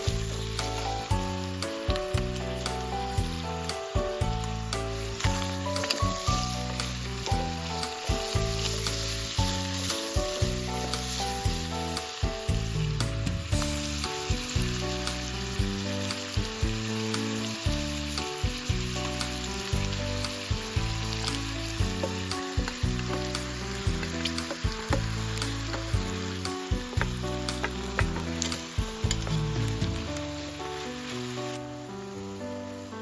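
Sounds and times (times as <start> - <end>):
background music: 0.0 - 33.0
food sizzling in a pan: 0.0 - 33.0
crackling pops: 21.2 - 30.5.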